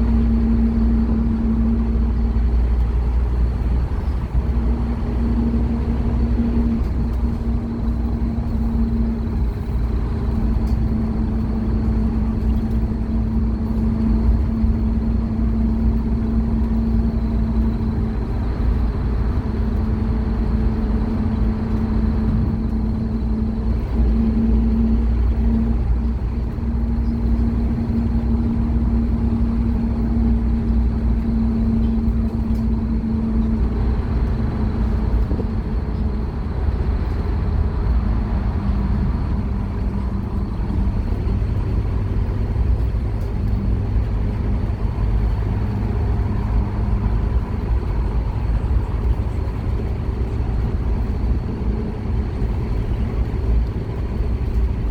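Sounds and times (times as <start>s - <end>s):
bus diesel engine rumble: 0.0s - 54.9s.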